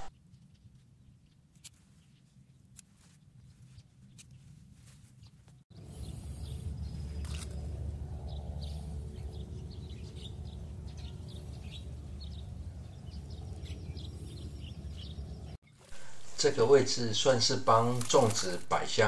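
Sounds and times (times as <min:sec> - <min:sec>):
small birds chirping: 0:00.0 - 0:19.0
steady low rumble: 0:05.7 - 0:19.0.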